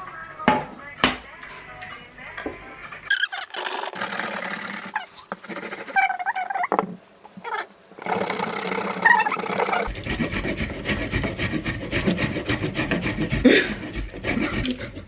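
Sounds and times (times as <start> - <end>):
vegetables scraping on grater: 3.1 - 15.0.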